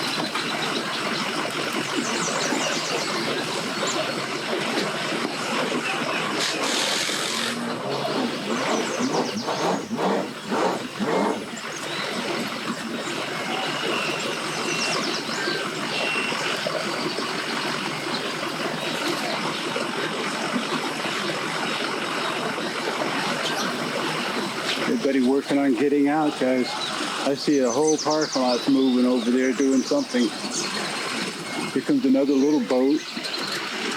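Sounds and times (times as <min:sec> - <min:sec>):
vehicle engines running: 0:07.4 - 0:19.2.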